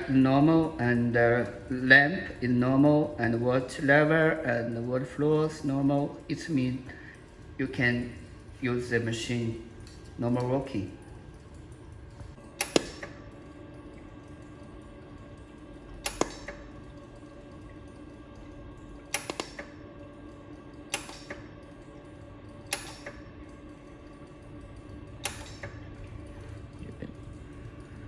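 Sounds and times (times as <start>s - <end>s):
machine running hum: 0.0s - 28.0s
laser welder pulse snaps: 20.9s - 21.5s.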